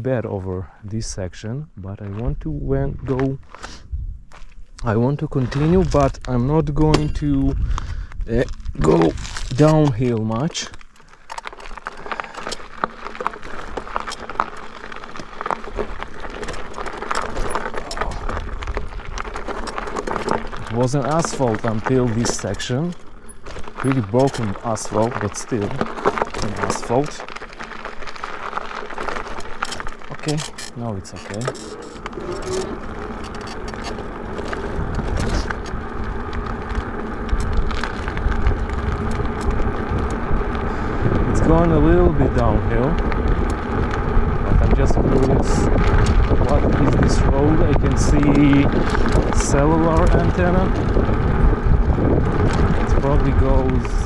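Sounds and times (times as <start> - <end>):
low rumble of tyres: 0.0 - 54.0
bike rattling and clicking: 10.7 - 24.6, 25.8 - 53.2.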